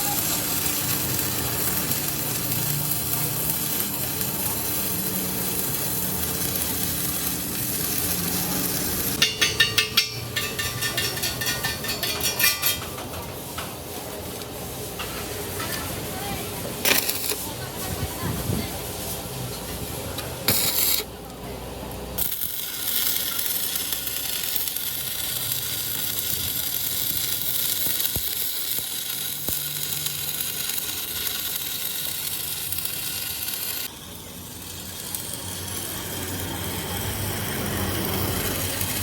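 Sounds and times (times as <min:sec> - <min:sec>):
loud steady hiss: 0:00.0 - 0:09.3, 0:22.2 - 0:39.0.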